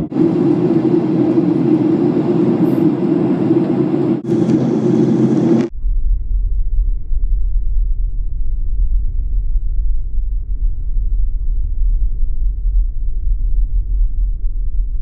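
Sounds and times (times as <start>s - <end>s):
airliner cabin engine and airflow rush: 0.0s - 5.8s
deep low rumble: 0.0s - 15.0s.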